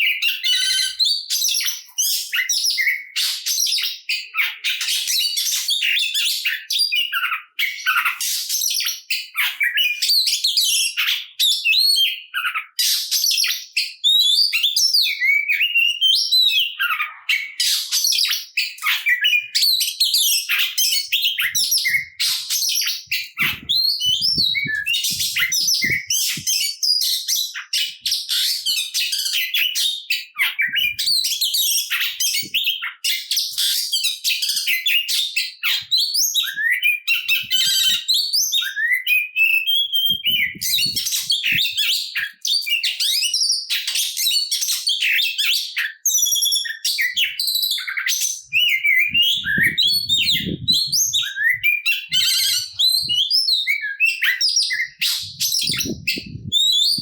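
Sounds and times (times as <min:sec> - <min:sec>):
bird singing varied whistles: 0:18.0 - 0:33.8, 0:34.4 - 0:57.0.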